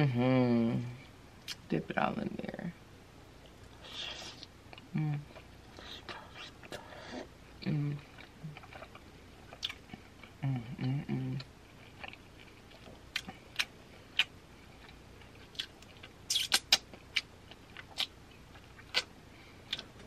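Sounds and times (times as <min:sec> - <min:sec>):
person humming mm: 0:03.8 - 0:08.6, 0:10.4 - 0:11.5
chewing with lip smacks: 0:08.0 - 0:20.0.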